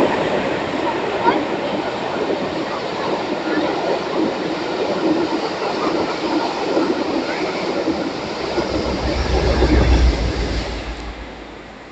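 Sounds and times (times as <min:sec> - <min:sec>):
low rumble: 0:07.9 - 0:11.9.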